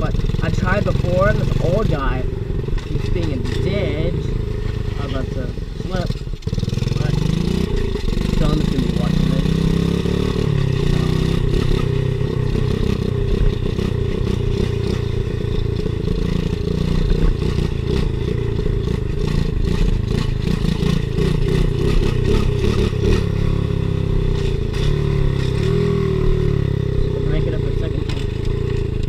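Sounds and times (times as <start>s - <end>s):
rattling and knocks over rough ground: 0.0s - 9.0s, 27.3s - 29.0s
small motorcycle engine running: 0.0s - 29.0s.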